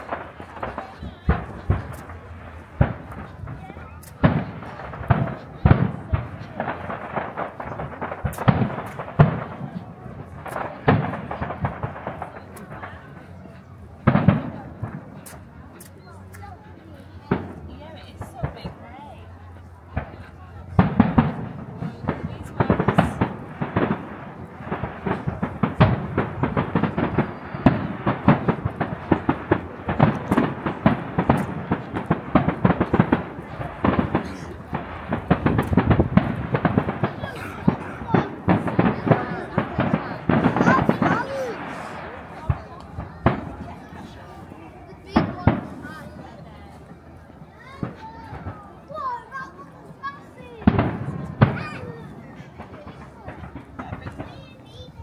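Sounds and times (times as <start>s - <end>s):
fireworks bangs: 0.0s - 55.0s
fireworks crackling: 0.0s - 55.0s.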